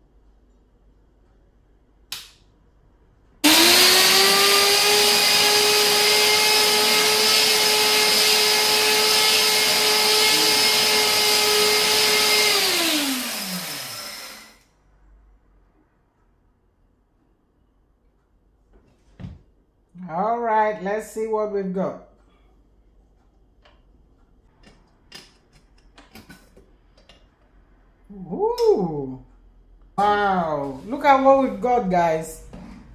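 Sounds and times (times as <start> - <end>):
electric grinder whining: 3.4 - 14.6.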